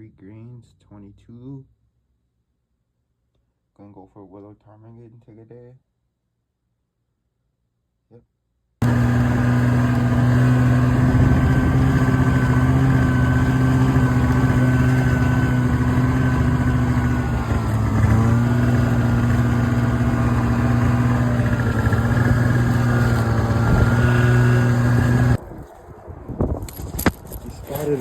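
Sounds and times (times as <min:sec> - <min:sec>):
small vehicle engine running: 0:08.8 - 0:25.4.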